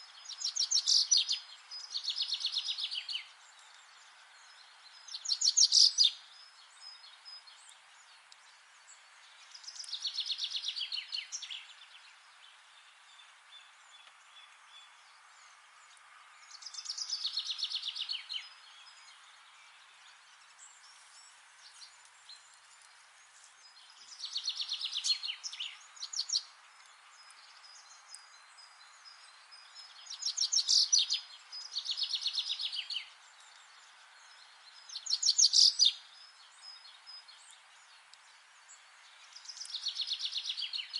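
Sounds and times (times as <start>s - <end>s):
forest ambience hiss: 0.0s - 40.9s
songbird trilling: 5.1s - 6.2s, 30.0s - 33.1s, 34.9s - 36.0s.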